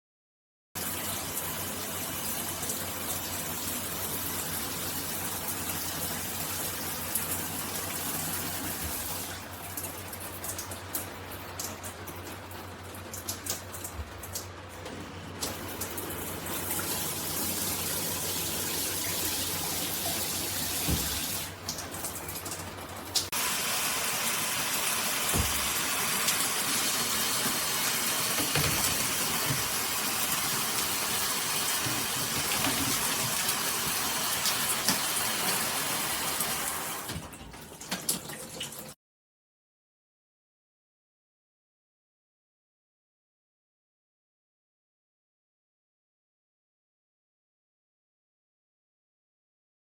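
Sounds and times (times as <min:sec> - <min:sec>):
shower spraying water into bathtub: 0:00.8 - 0:39.0.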